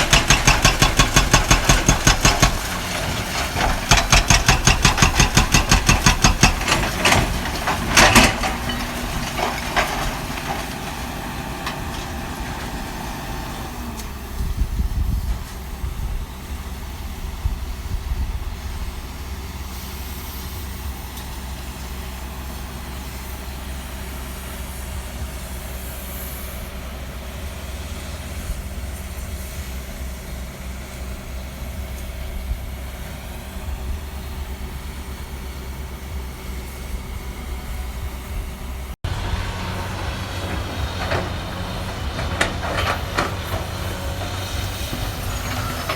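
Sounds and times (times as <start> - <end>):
heavy crashes: 0.0 - 14.5
diesel engine running: 0.0 - 45.9.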